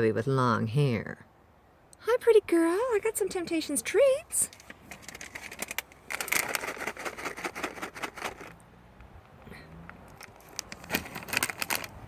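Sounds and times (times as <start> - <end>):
treat package crackling: 4.5 - 8.6, 10.0 - 12.0.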